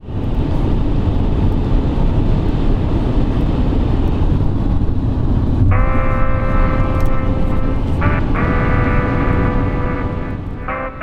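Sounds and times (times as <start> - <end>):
low engine rumble: 0.0 - 11.0
sustained pitched tone: 5.6 - 11.0.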